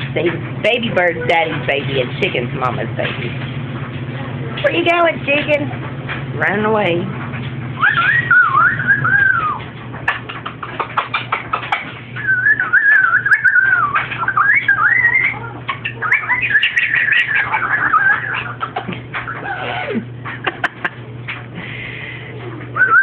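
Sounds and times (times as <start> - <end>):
parrot whistling and warbling: 7.8 - 9.7, 12.2 - 20.0, 22.8 - 23.0.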